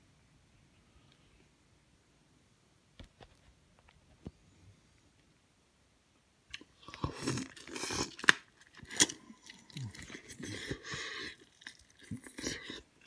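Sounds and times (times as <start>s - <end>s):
person chewing and crunching: 6.5s - 13.0s.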